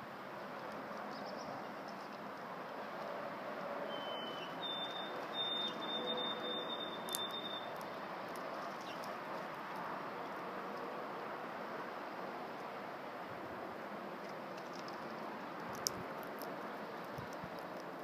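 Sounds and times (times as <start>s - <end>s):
bird whistling high thin note: 3.9s - 7.7s.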